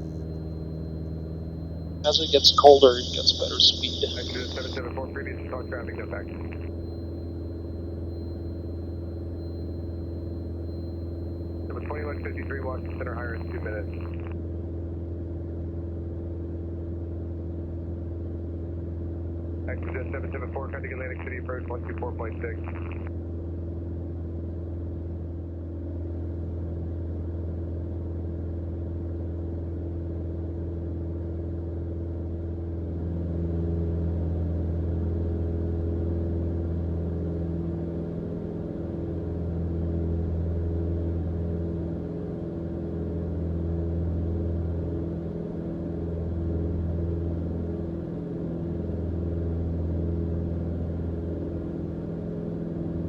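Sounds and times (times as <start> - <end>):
airplane engine and propeller drone: 0.0 - 10.9, 11.7 - 14.1.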